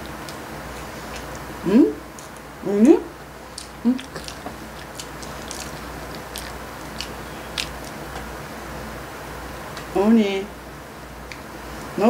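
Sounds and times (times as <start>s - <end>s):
person chewing food: 0.0s - 2.5s, 3.4s - 8.4s.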